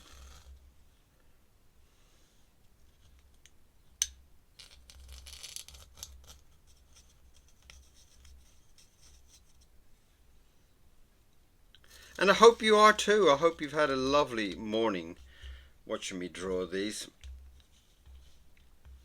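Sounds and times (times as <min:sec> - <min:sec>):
pen scratching on paper: 0:17.5 - 0:19.0.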